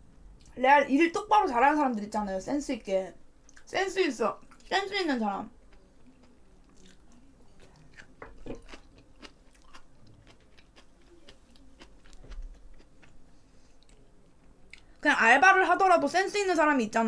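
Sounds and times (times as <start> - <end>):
person chewing food: 5.6 - 15.0.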